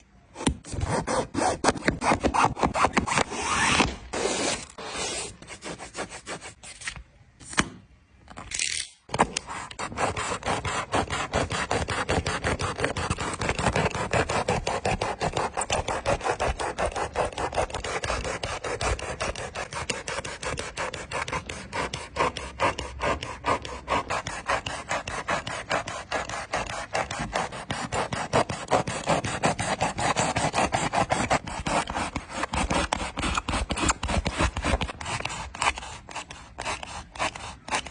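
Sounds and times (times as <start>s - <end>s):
rasping cutting strokes: 9.4s - 37.9s.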